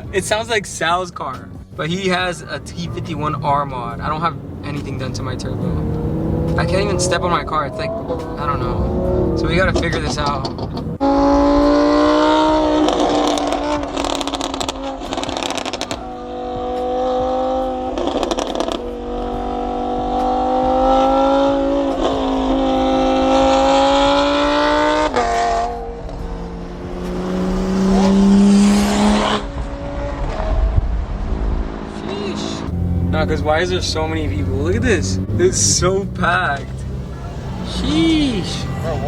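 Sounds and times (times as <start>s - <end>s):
car engine running: 1.4s - 11.4s, 26.0s - 30.2s, 31.6s - 39.0s.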